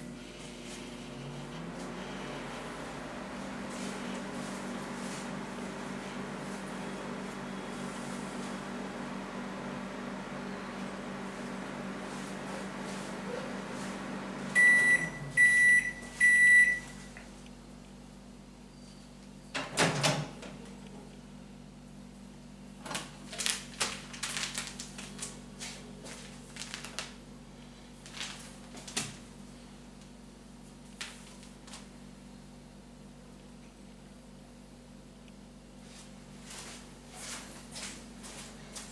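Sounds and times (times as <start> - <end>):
microwave oven humming: 0.0 - 38.9
loud microwave beeps: 10.3 - 11.1, 14.5 - 17.2.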